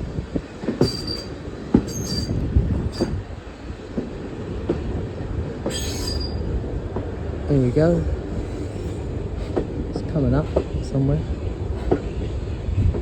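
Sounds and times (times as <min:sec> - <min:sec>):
train carriage low rumble: 0:00.0 - 0:13.0
train wheels knocking over track: 0:00.6 - 0:03.2
wheel flanges squealing: 0:00.8 - 0:03.2, 0:05.7 - 0:06.4.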